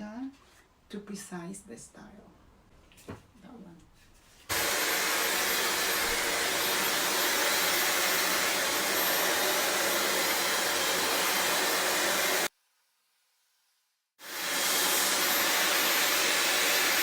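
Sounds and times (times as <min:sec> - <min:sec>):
hair dryer blowing: 0:04.5 - 0:12.5, 0:14.2 - 0:17.0.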